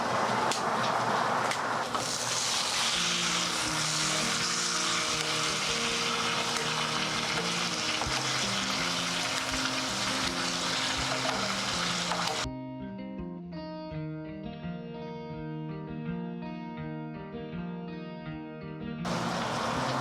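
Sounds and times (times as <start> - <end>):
meat sizzling on a wood fire: 0.0 - 12.5, 19.1 - 20.0
plucked background music: 2.4 - 20.0.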